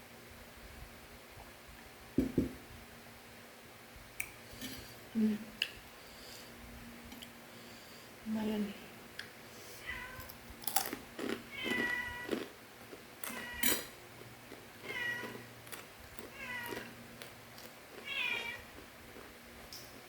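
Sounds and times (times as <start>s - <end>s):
cat meowing: 9.8s - 10.3s, 11.5s - 12.4s, 13.2s - 13.8s, 14.8s - 15.4s, 16.3s - 16.9s, 18.0s - 18.7s.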